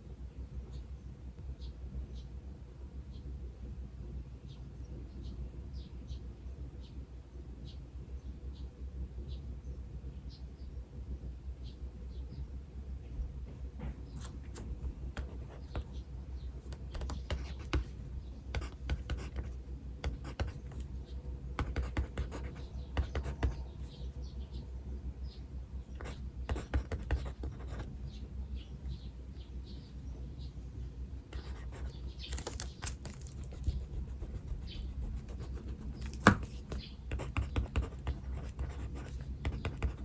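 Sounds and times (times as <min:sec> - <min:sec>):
steady low hum: 0:00.0 - 0:40.0
small birds chirping: 0:14.1 - 0:40.0
pencil scratching on paper: 0:16.7 - 0:20.9, 0:21.6 - 0:24.0, 0:26.0 - 0:27.9, 0:31.4 - 0:40.0.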